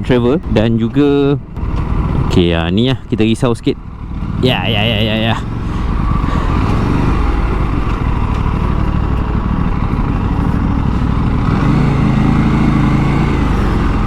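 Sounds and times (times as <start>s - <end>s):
motorcycle engine running: 0.0s - 14.0s
rush of riding noise: 0.0s - 14.0s.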